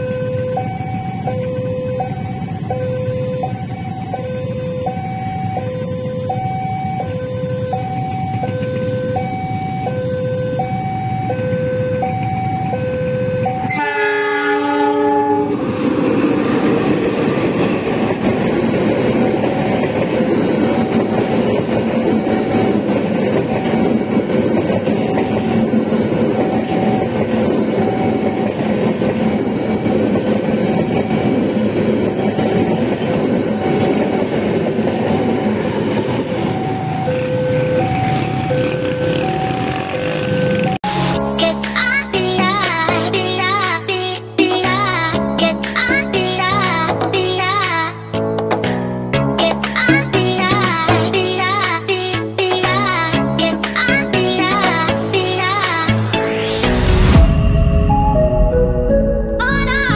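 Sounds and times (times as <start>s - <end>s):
level crossing alarm two-tone: 0.0s - 15.6s, 26.4s - 28.8s, 35.2s - 41.4s
locomotive horn blast: 13.7s - 15.7s
train wheels clattering on rails: 15.7s - 40.8s.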